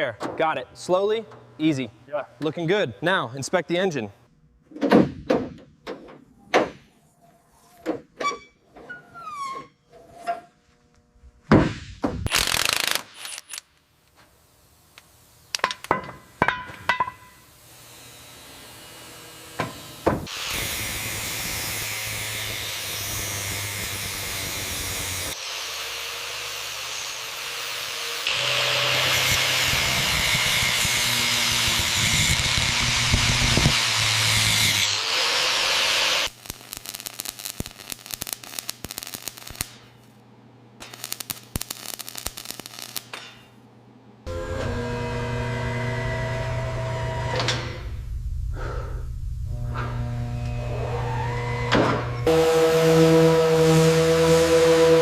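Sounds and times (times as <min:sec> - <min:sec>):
power tool running: 0:17.6 - 0:36.4, 0:44.3 - 0:48.0, 0:49.5 - 0:55.0.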